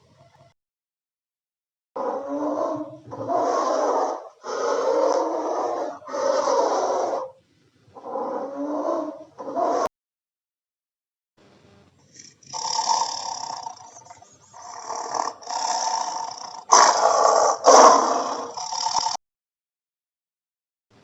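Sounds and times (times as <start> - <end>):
animal rough calls: 2.0 - 7.4, 8.0 - 9.9, 12.1 - 19.2.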